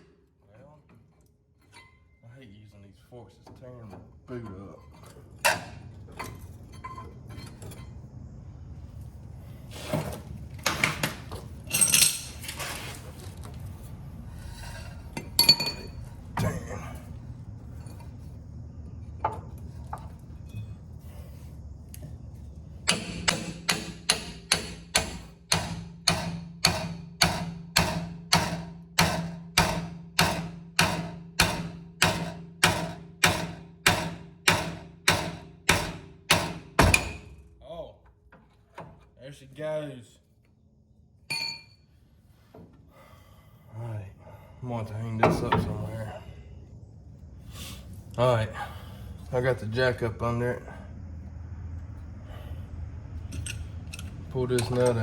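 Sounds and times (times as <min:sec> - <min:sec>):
metal clanks and knocks: 0:03.4 - 0:08.1, 0:15.1 - 0:16.8, 0:22.8 - 0:37.4, 0:45.1 - 0:45.9.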